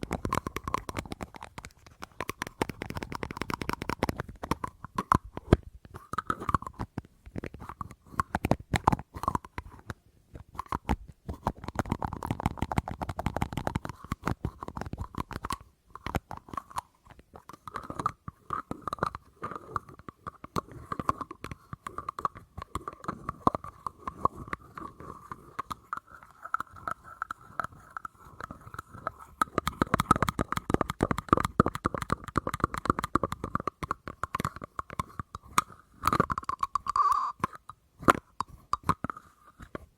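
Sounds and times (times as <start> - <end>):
fast tapping on an object: 0.0 - 39.9
faint ringing tone: 36.9 - 37.4.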